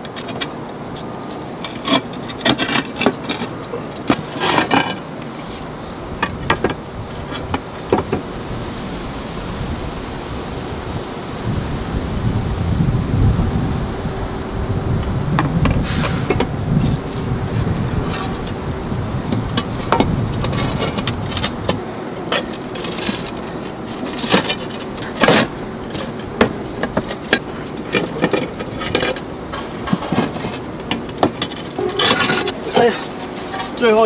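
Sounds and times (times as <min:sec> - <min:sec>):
roof tiles clinking: 0:00.0 - 0:08.4, 0:15.4 - 0:34.0.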